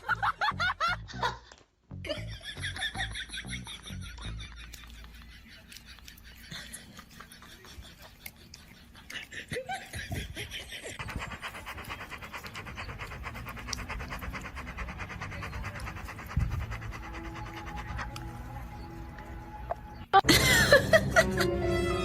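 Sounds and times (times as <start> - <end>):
dog panting: 3.6 - 20.0.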